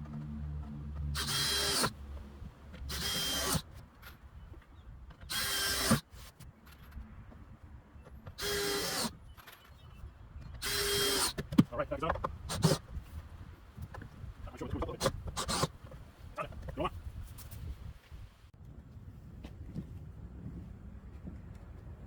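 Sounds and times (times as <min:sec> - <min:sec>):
power drill bursts: 0:01.2 - 0:01.9, 0:02.9 - 0:03.6, 0:05.3 - 0:06.0, 0:08.4 - 0:09.2, 0:10.6 - 0:11.4.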